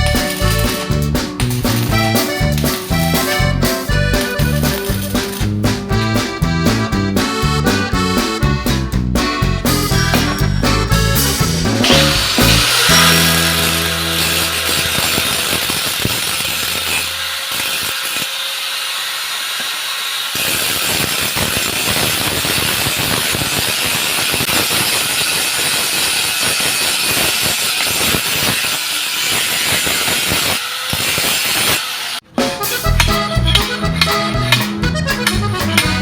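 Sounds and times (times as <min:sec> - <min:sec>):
hand saw rasping: 0:09.9 - 0:22.1, 0:32.8 - 0:36.0.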